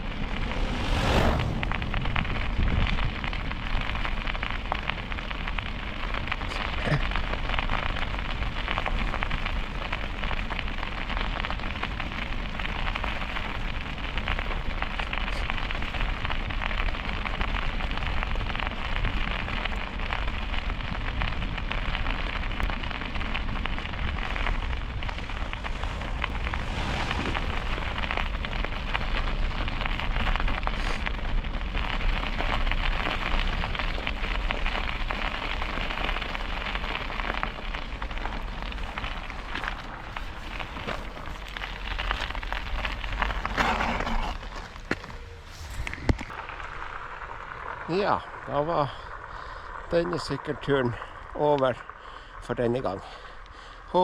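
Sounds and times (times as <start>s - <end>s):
wind over microphone: 0.0s - 6.6s, 20.7s - 35.2s, 37.9s - 46.4s
tyres on wet slushy road: 0.0s - 54.0s.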